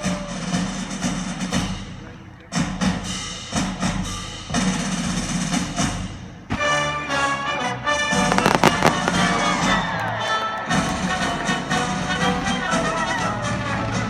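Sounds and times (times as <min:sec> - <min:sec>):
fireworks exploding: 0:08.2 - 0:11.6.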